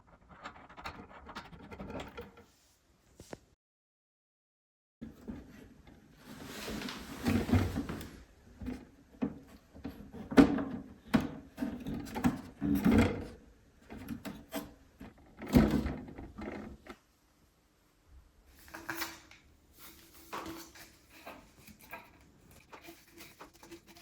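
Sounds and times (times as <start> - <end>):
toilet tank parts knocking and scraping: 0.0 - 2.5, 5.0 - 17.0.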